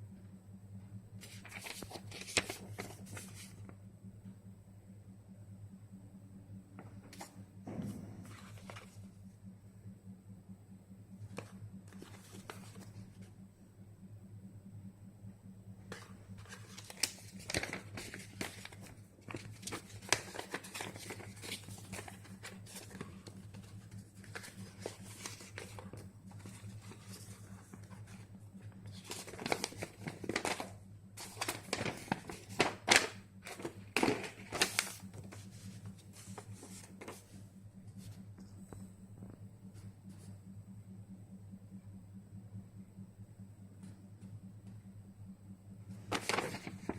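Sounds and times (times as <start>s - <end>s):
low electrical hum: 0.0s - 46.9s
plastic and cardboard crinkling: 1.2s - 3.6s, 15.9s - 28.2s, 28.9s - 37.4s, 46.1s - 46.9s.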